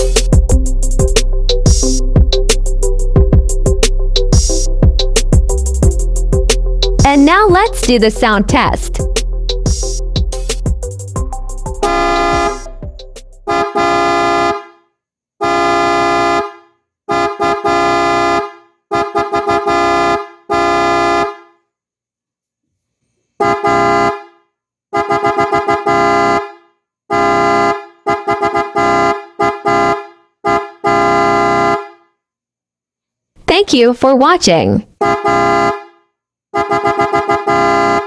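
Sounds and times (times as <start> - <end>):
low electric car horn honking: 11.8 - 12.6, 13.5 - 21.6, 23.4 - 24.4, 25.0 - 32.1, 35.0 - 36.0, 36.6 - 38.0.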